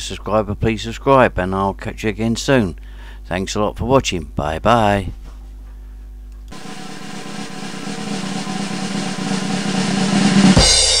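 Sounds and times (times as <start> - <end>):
bright music: 6.5 - 11.0
snare drum roll: 6.5 - 11.0.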